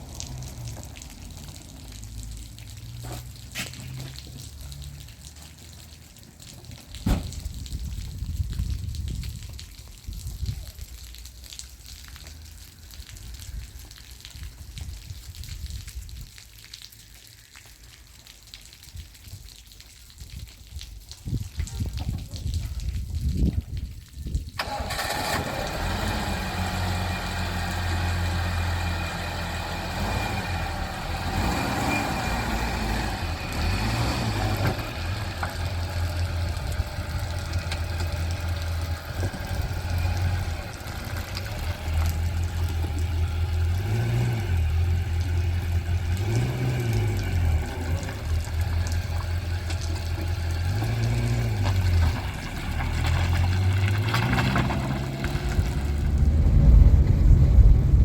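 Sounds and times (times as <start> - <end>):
car engine accelerating: 24.6 - 58.0.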